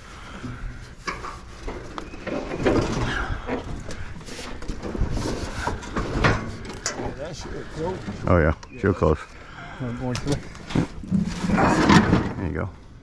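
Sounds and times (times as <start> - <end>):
metal knocking and scraping: 0.4 - 8.4.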